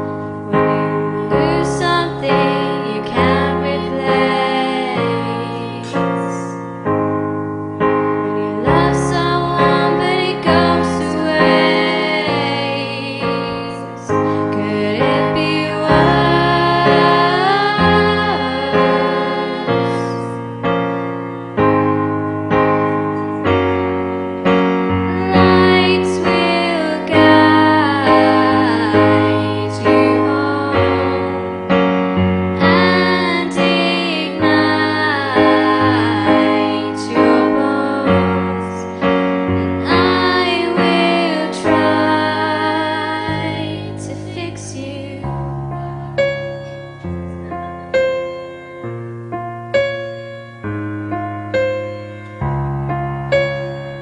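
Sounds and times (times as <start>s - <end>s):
woman singing: 0.0s - 6.7s, 8.2s - 20.5s, 25.1s - 31.6s, 32.6s - 47.0s
piano chords: 0.0s - 54.0s.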